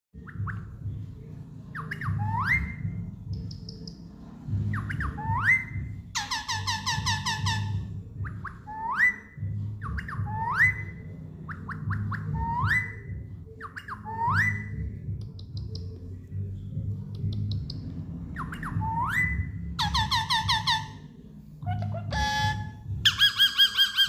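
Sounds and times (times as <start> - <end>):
parakeet whistled calls: 1.8 - 2.9, 4.7 - 14.8, 18.4 - 21.0, 21.7 - 24.0.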